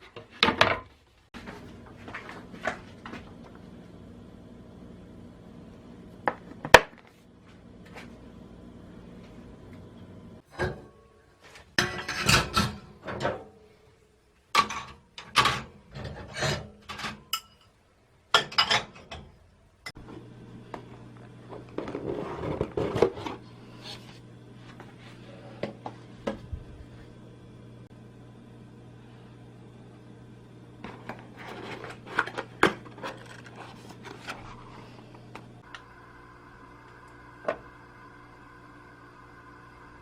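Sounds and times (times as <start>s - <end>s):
steady low hum: 1.4s - 17.6s, 19.8s - 40.0s
dishes and utensils clattering: 11.7s - 13.5s, 14.5s - 17.7s, 18.3s - 19.4s.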